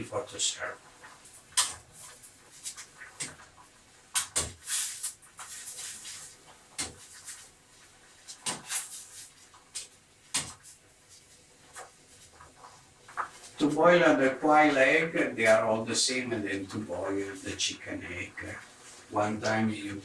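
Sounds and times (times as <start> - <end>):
short hiss: 4.6 - 5.2.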